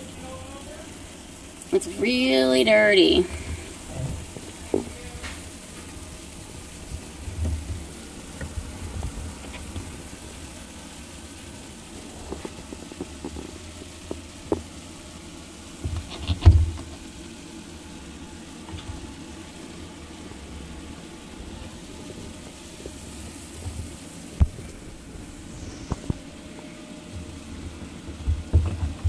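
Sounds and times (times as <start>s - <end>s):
steady background noise: 0.0s - 29.0s
knocks and bumps: 27.2s - 29.0s.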